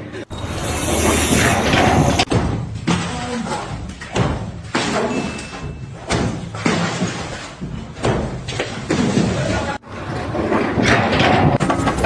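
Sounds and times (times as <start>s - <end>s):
heavy thuds: 1.8s - 8.5s.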